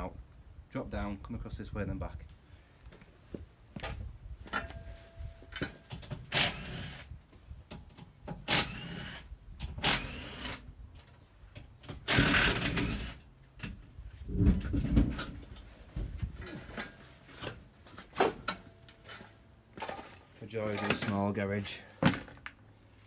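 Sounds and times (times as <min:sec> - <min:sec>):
metal parts clanking and scraping: 0:03.9 - 0:07.1, 0:12.0 - 0:15.7, 0:16.3 - 0:22.6.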